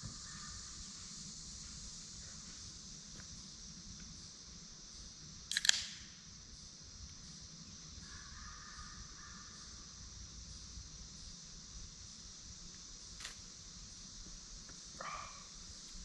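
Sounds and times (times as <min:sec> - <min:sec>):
high-pitched hiss: 0:00.0 - 0:16.0
sharp clicks: 0:05.5 - 0:06.1.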